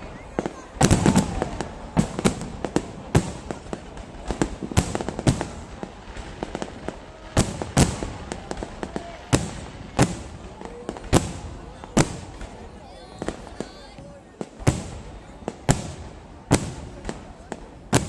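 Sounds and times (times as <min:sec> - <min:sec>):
distant fireworks bursts: 0:00.0 - 0:18.0
fireworks sharp bangs: 0:00.0 - 0:18.0.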